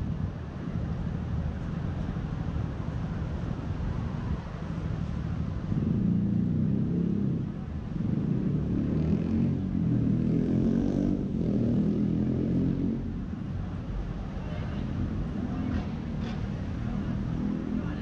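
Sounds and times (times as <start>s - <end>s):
vehicle engine rumbling: 13.0s - 18.0s.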